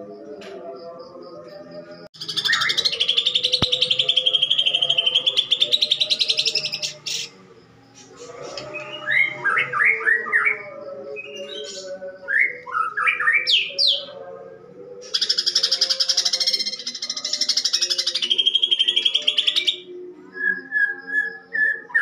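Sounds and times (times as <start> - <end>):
bird sharp chirps: 2.2 - 7.4.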